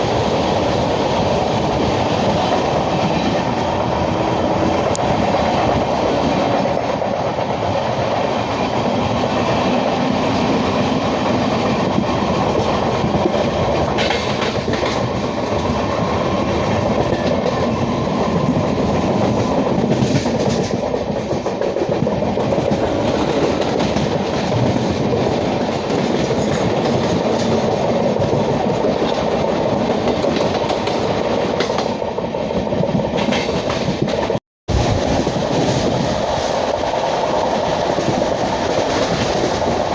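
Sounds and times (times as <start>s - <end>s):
train wheels rumbling on rail: 0.0s - 39.9s
clatter over rail joints: 8.5s - 15.8s, 16.6s - 39.9s.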